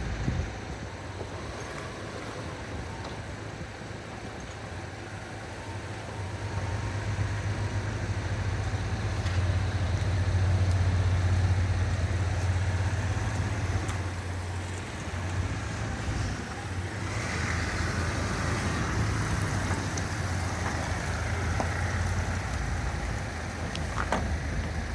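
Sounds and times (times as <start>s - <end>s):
diesel engine idling: 0.0s - 24.9s.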